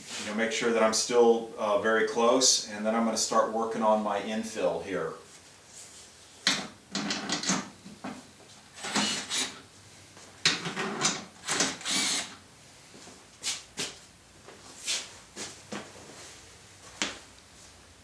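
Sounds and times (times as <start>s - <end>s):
rasping mechanical bursts: 11.4s - 12.4s.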